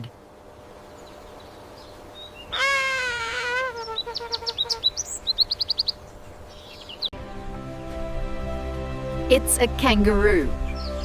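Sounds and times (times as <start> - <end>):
bird calling: 0.9 - 7.1.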